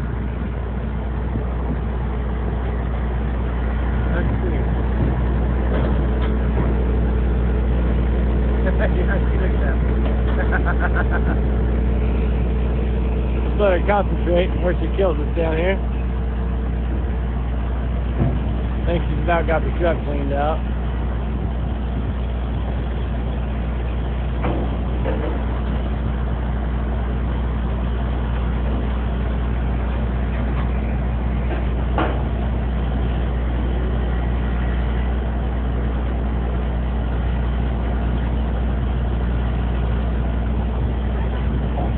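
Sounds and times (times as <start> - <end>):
truck engine running: 0.0 - 41.9.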